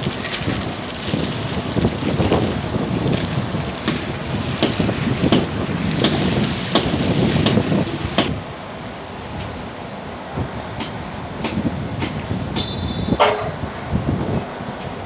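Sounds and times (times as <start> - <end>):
rumbling wind noise on microphone: 0.0 - 8.5, 10.3 - 15.0
sharp knocks: 3.9 - 8.4, 10.8 - 13.6.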